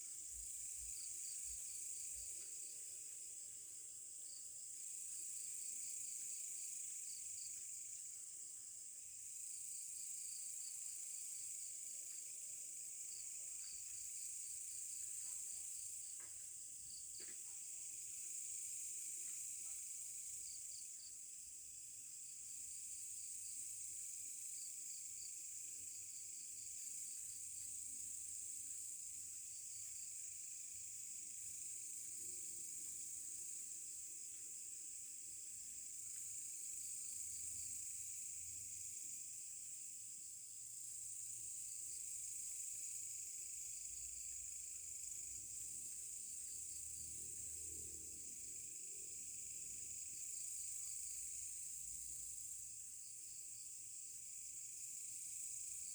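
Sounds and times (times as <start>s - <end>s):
insect chirps: 0.0s - 55.9s
insect high drone: 0.0s - 55.9s.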